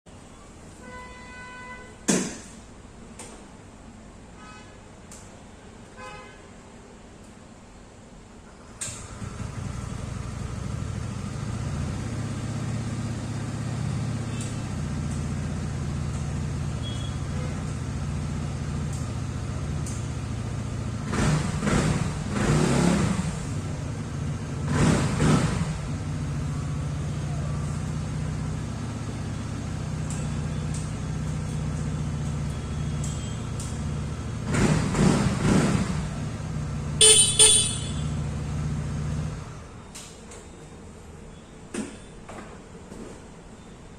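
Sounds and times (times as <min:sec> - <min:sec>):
scooter horn toots: 0:00.8 - 0:02.1, 0:16.7 - 0:17.3, 0:37.0 - 0:38.3
scooter engine idling and revving: 0:09.0 - 0:39.7.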